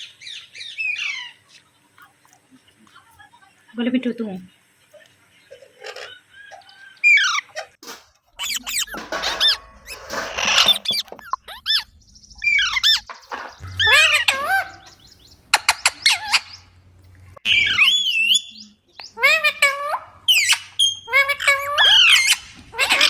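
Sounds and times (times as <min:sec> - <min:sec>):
parakeet chirping and squawking: 0:00.0 - 0:01.4, 0:05.7 - 0:23.0.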